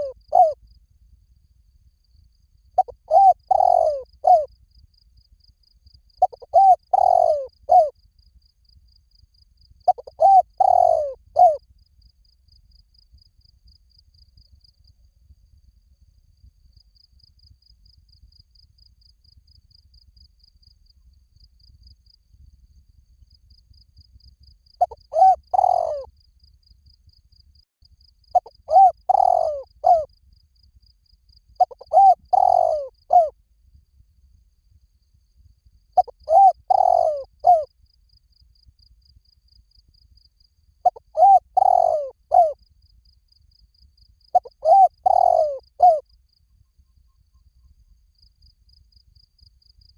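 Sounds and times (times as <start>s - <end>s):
dove cooing: 0.0s - 0.6s, 2.8s - 4.5s, 6.2s - 7.9s, 9.9s - 11.6s, 24.8s - 26.1s, 28.4s - 30.1s, 31.6s - 33.3s, 36.0s - 37.7s, 40.8s - 42.6s, 44.4s - 46.0s.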